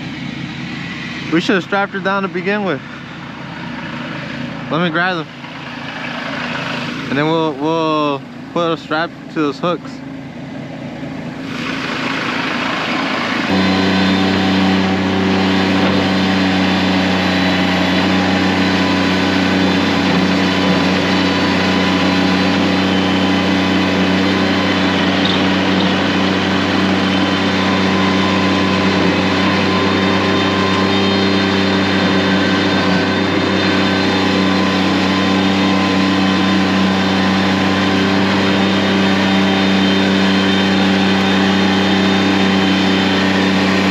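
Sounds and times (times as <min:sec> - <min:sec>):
engine humming steadily: 0:00.0 - 0:43.9.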